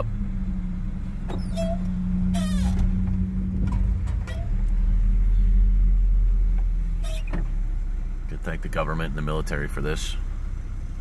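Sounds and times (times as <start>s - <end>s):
car engine idling: 0.0s - 11.0s
short squeaky sounds: 1.3s - 3.0s, 4.1s - 4.6s, 7.0s - 7.4s.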